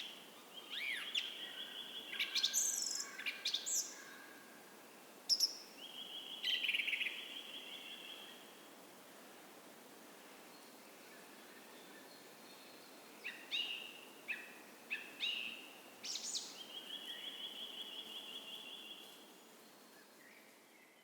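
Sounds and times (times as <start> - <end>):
songbird singing and trilling: 0.0 - 4.0.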